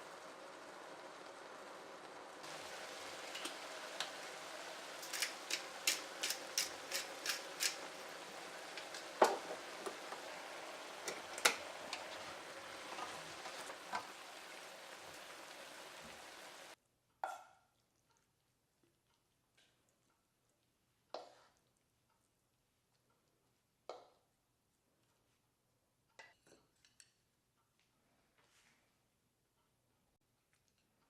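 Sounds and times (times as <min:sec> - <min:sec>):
vegetables sizzling in a pan: 0:00.0 - 0:16.8
utensil clicking against pan: 0:05.0 - 0:10.2, 0:11.0 - 0:12.1.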